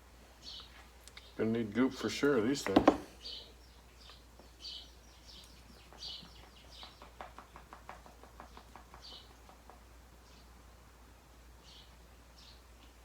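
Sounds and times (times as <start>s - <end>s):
small bird chirping: 2.7s - 7.7s, 8.4s - 9.6s.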